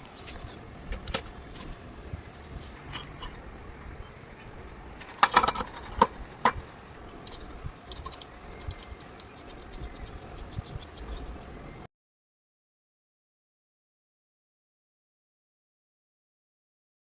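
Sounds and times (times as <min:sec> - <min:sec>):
metal tools clinking: 0:10.4 - 0:11.2.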